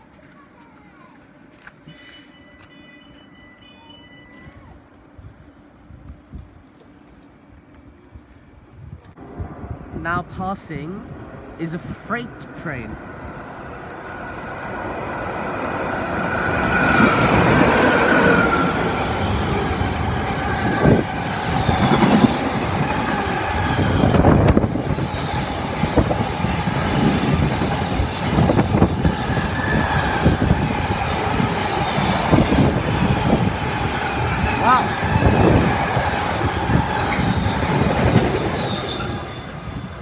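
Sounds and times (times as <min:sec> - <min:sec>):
train wheels squealing: 0:01.9 - 0:04.8, 0:21.4 - 0:22.5, 0:27.4 - 0:30.6, 0:36.7 - 0:40.0.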